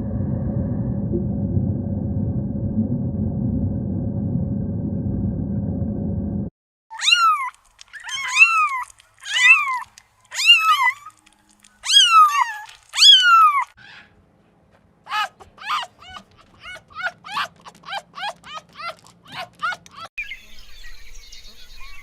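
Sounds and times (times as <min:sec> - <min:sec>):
cat meowing: 0:06.9 - 0:11.2, 0:11.8 - 0:14.0, 0:15.1 - 0:20.1.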